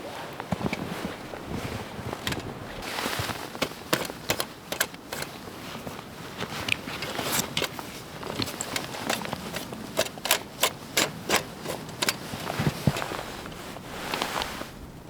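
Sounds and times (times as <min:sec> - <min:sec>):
snow crunching: 0:00.0 - 0:04.3, 0:11.2 - 0:15.0
soft rustling: 0:00.0 - 0:15.0.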